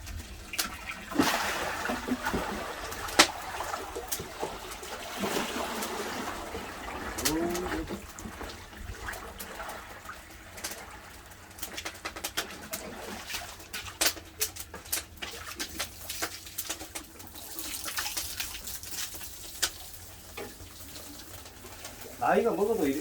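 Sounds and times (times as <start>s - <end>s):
firewood crackling and popping: 0.0s - 23.0s.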